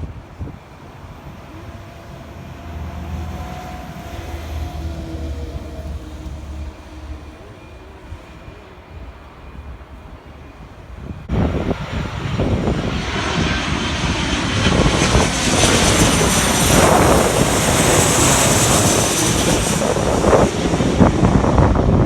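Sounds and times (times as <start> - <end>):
airplane engine passing: 0.0 - 22.0
faint high whine: 0.1 - 11.3.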